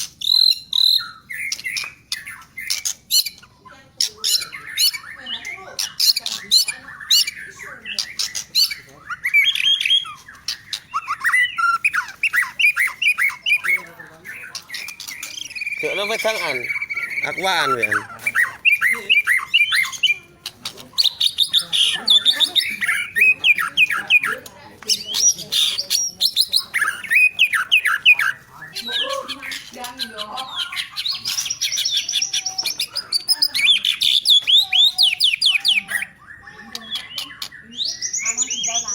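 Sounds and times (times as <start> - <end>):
bird singing whistled notes: 4.2 - 20.3, 21.0 - 29.7.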